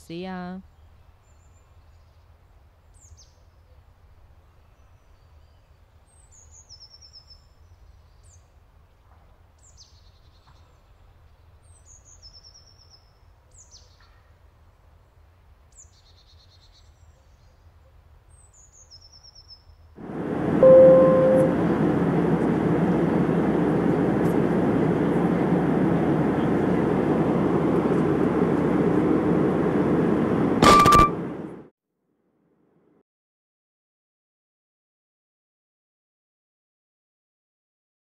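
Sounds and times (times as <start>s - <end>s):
faint low hum: 20.0s - 31.6s
loud rushing noise: 20.0s - 31.6s
short steady tone: 20.1s - 22.1s, 30.5s - 31.5s.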